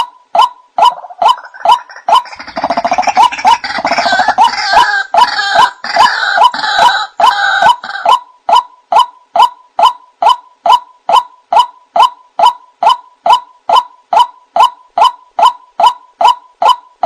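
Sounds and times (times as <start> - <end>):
waterhen croaking and calling: 0.0 - 17.0.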